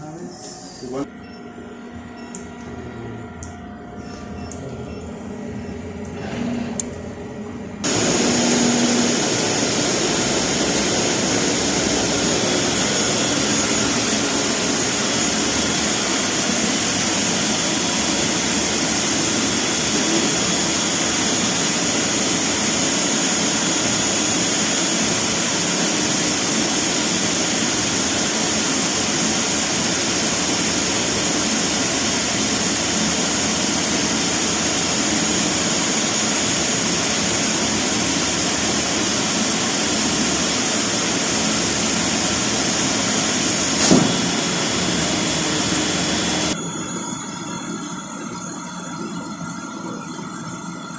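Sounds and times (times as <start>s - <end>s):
thin high whine: 0.0s - 50.9s
cutting machine hissing: 7.8s - 46.6s.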